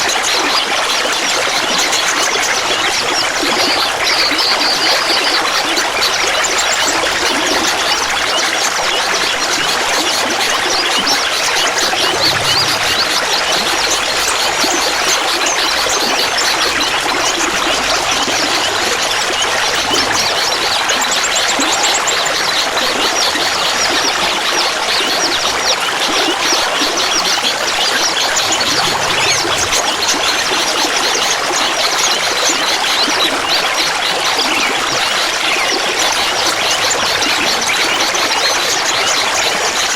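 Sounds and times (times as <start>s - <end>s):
water trickling and babbling: 3.0s - 39.9s.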